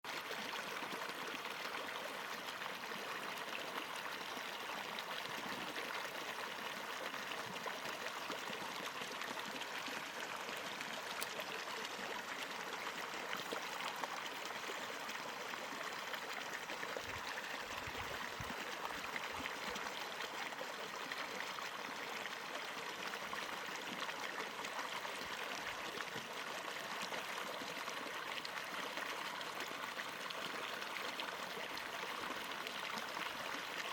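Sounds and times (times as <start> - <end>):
stream running over rocks: 0.1 - 33.9.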